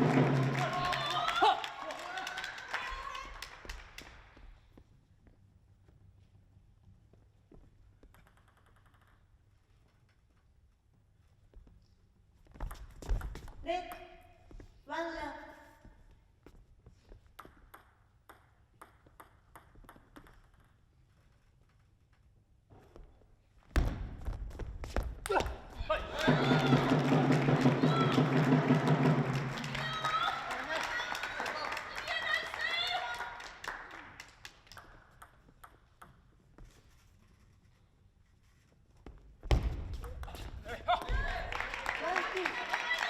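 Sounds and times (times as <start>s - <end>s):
table tennis ball clicking: 8.0s - 9.3s
table tennis ball bouncing: 8.0s - 9.5s, 17.2s - 20.9s, 34.7s - 36.8s
table tennis ball hit: 17.4s - 20.7s.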